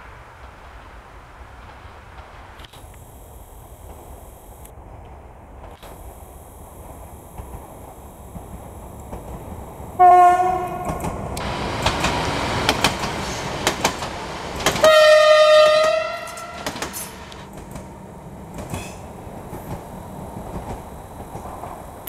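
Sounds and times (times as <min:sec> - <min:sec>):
train passing at speed: 0:00.0 - 0:22.0
wheels clicking over rail joints: 0:07.4 - 0:22.0
train horn: 0:10.0 - 0:11.6, 0:14.8 - 0:17.4.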